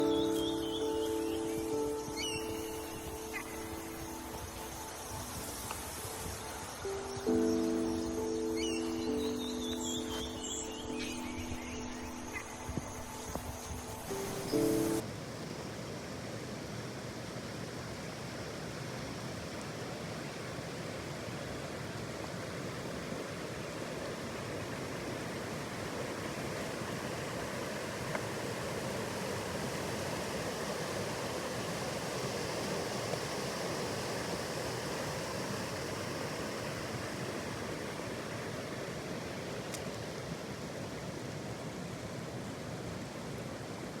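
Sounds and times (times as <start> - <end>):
flowing water rushing: 15.9 - 44.0.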